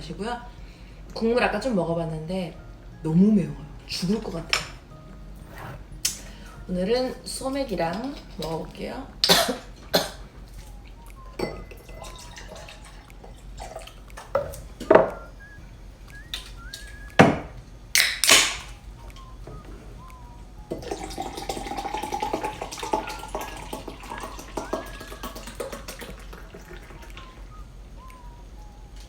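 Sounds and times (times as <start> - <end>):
bottles and glass clinking: 4.5 - 17.4, 20.7 - 27.4
liquid pouring into a glass: 11.3 - 14.9, 20.7 - 27.4.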